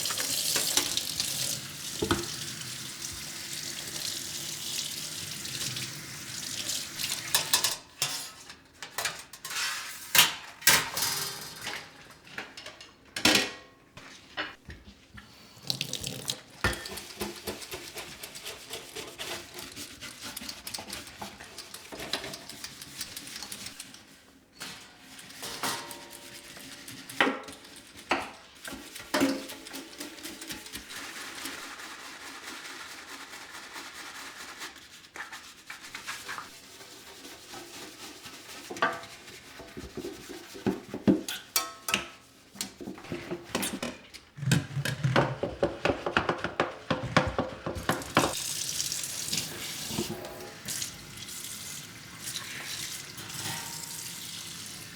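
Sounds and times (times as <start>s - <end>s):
dishes rubbing and scraping: 0.0s - 2.3s, 7.0s - 12.8s, 16.4s - 24.2s, 25.1s - 32.8s, 35.1s - 48.5s, 52.6s - 54.1s
dishes clinking and knocking: 2.0s - 2.3s, 7.3s - 8.4s, 16.6s - 17.7s, 43.0s - 48.4s.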